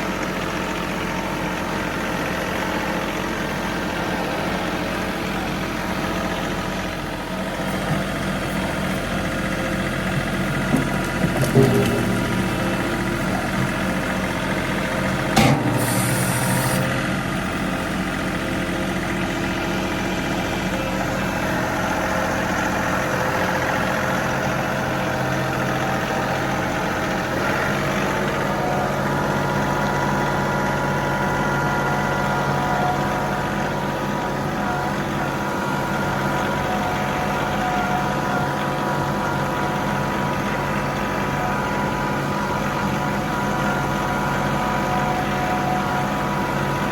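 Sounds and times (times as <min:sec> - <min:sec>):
diesel tractor engine running: 0:00.0 - 0:46.9
sharp knock: 0:15.4 - 0:16.7.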